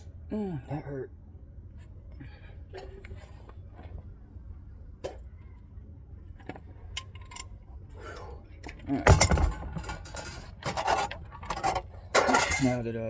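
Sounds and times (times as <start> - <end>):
low steady rumble: 0.0 - 13.0
metal tools clinking: 6.9 - 7.6, 9.0 - 12.9.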